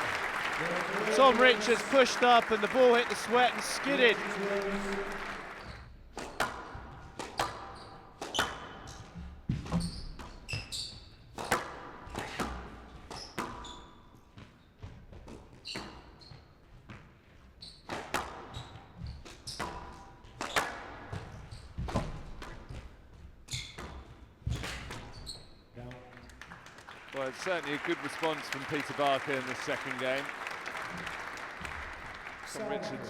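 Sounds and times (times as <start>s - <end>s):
shoes squeaking on court floor: 9.8s - 11.2s, 23.5s - 25.7s
squash ball hitting rackets and walls: 11.3s - 13.6s.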